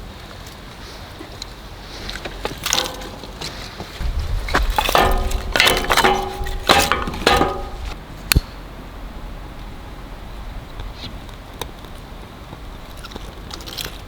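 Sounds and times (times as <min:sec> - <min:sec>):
metal clinks and knocks: 0:02.6 - 0:08.0.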